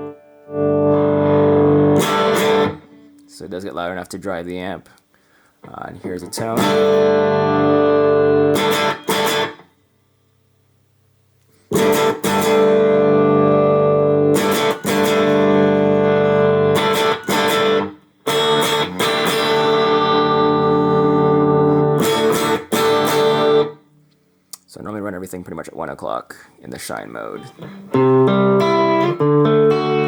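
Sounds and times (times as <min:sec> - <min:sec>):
overdriven electric guitar chords: 0:00.0 - 0:03.3, 0:06.3 - 0:10.6, 0:11.5 - 0:24.3, 0:27.3 - 0:30.0.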